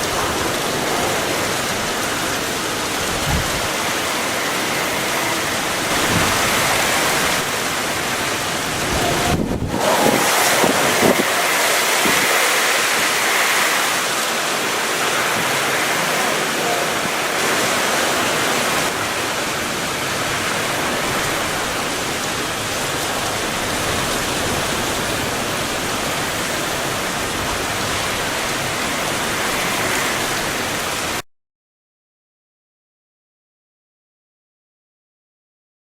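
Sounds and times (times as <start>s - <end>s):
wind and rain rushing: 0.0s - 31.2s.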